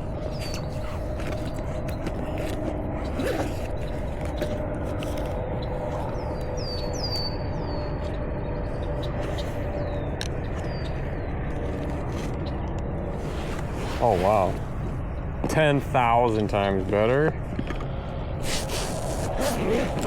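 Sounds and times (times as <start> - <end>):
bird chirping: 6.1 - 8.1.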